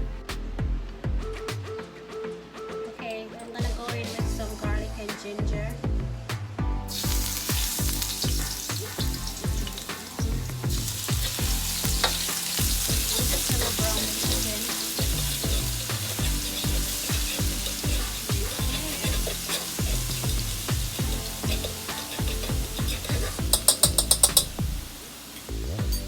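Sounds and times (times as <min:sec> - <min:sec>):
background music with steady beat: 0:00.0 - 0:26.0
food sizzling in hot pan: 0:06.9 - 0:26.0.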